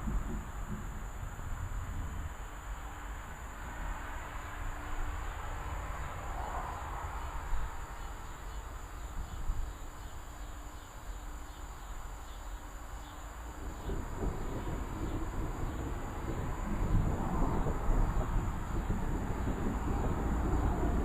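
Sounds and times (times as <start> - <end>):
distant thunder rumbling: 0.0 - 2.7, 13.5 - 21.0
faint insect chirping: 0.0 - 21.0.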